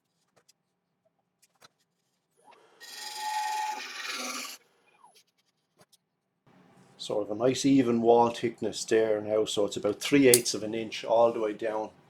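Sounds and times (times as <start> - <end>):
tool clicking on wood: 10.3 - 10.6.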